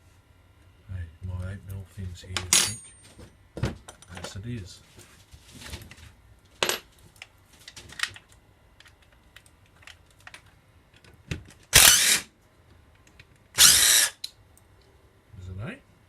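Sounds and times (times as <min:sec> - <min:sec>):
metal tools clinking: 0:02.4 - 0:03.2
sharp ringing clink: 0:02.5 - 0:03.0
cordless drill whirring: 0:11.8 - 0:12.3, 0:13.6 - 0:14.2.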